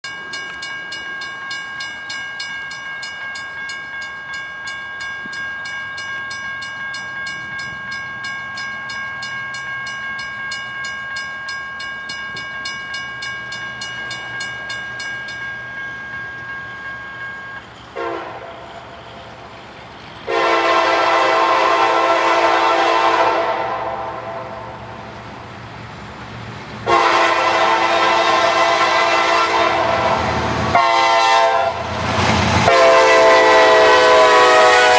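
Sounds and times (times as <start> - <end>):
crossing bell ringing: 0.0 - 23.4
diesel locomotive rumble: 2.8 - 34.9
locomotive air horn blasts: 18.0 - 18.5, 20.3 - 24.6, 26.8 - 31.9, 32.6 - 34.9.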